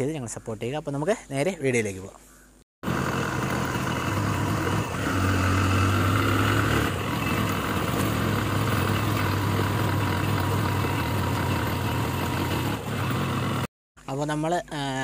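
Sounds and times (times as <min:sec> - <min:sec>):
motorcycle engine running: 0:02.8 - 0:13.7.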